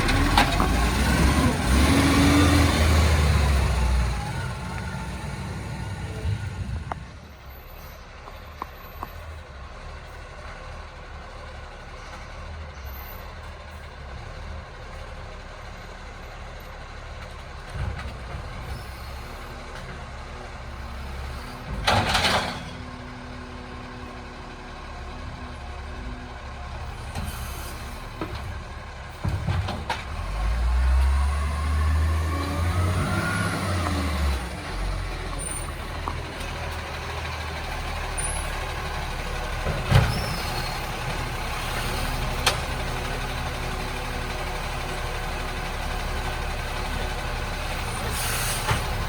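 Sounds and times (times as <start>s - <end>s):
diesel engine rumbling: 0.0s - 49.0s
air brakes hissing: 27.2s - 28.2s, 47.8s - 49.0s.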